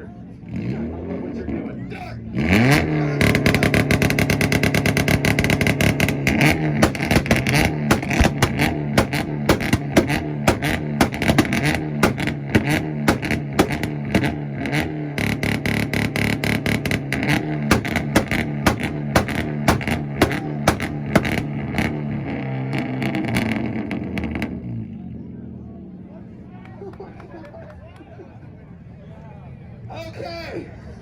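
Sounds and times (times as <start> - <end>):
car engine buzzing on limiter: 2.4 - 24.3
exhaust pops and crackles: 3.2 - 22.1.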